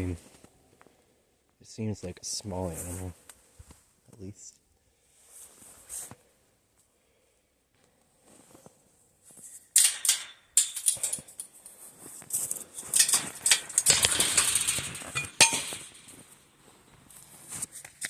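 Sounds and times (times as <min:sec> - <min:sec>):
footsteps crunching through snow: 0:11.8 - 0:12.9, 0:16.1 - 0:18.0.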